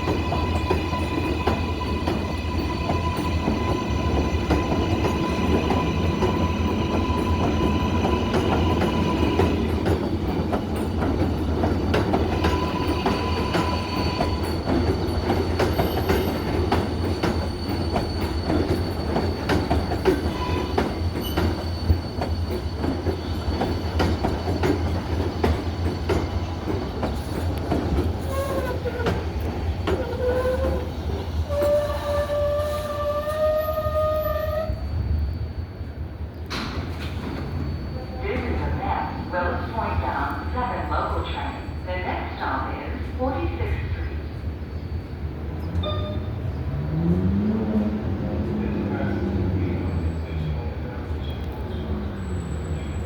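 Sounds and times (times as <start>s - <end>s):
high wheel squeals: 0.0s - 36.2s, 37.0s - 39.6s, 51.6s - 53.0s
subway train rumble on rails: 0.0s - 53.0s.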